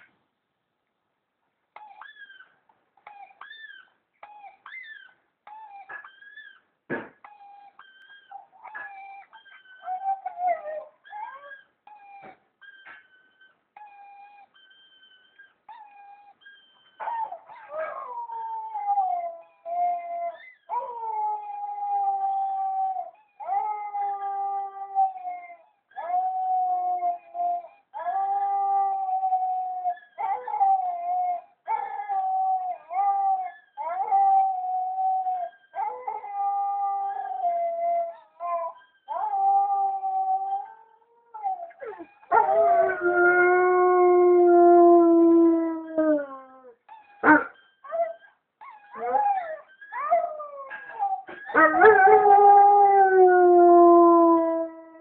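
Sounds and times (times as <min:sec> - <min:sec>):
dog whimpering: 0:01.8 - 0:43.8, 0:45.8 - 0:52.4
dog howling: 0:17.0 - 0:48.2, 0:48.8 - 0:55.0.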